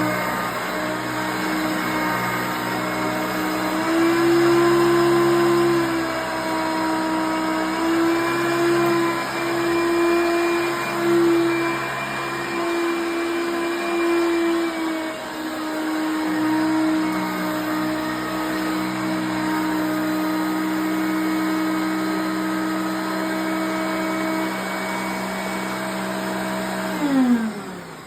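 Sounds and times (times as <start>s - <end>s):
vacuum cleaner motor whine: 0.0s - 28.0s.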